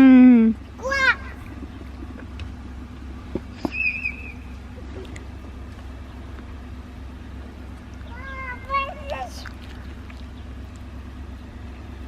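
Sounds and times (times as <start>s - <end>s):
low mechanical hum: 0.0s - 12.0s
short high squeak: 3.6s - 4.4s.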